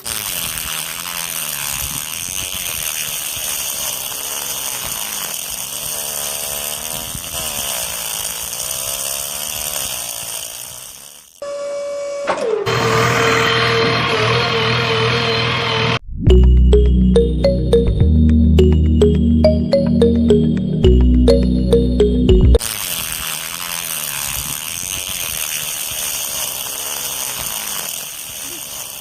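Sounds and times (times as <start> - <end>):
small electric motor whirring: 0.0 - 11.7, 22.6 - 29.0
electronic music: 16.3 - 22.6.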